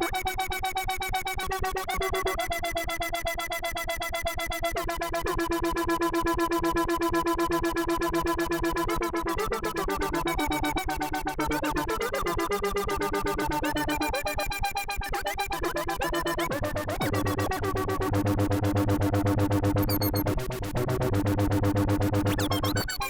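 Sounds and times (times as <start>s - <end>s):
pulsing synthesizer drone: 10.0s - 23.0s.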